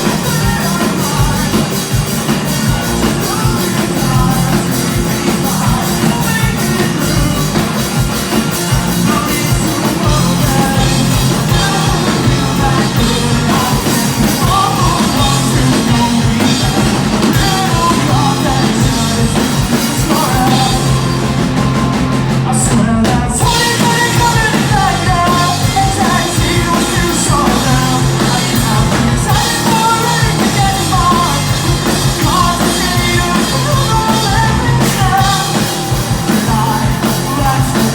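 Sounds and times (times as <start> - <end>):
person singing: 0.0 - 37.9
rock band playing loudly: 0.0 - 37.9.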